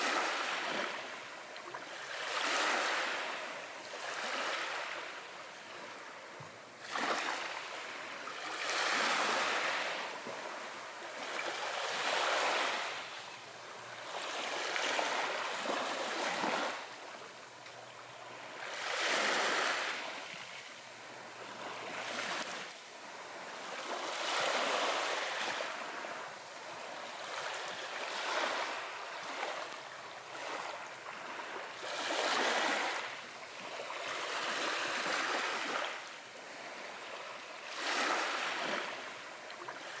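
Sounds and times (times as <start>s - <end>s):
small waves washing in and out: 0.0s - 40.0s.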